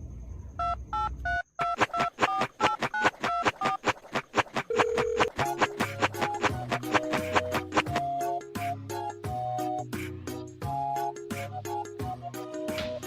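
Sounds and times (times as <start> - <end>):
telephone dialing beeps: 0.6 - 3.8, 4.7 - 5.4
long low telephone tone: 4.7 - 5.3.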